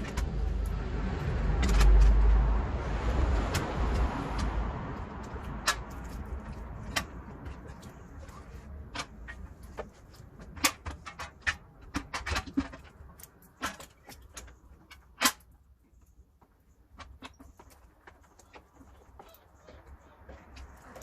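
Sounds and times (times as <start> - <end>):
metallic clanks and knocks: 3.6 - 15.6.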